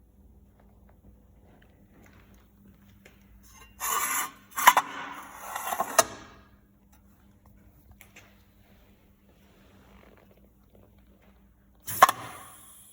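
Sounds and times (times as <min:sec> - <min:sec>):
low steady hum: 0:00.0 - 0:12.9
sharp machine clunk: 0:11.9 - 0:12.6.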